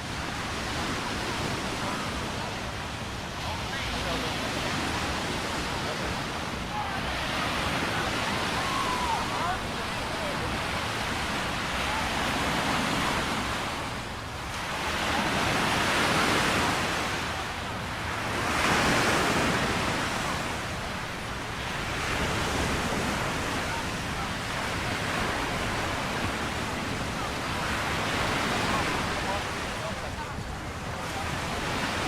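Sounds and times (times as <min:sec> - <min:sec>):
ocean surf breaking on beach: 0:00.0 - 0:32.0.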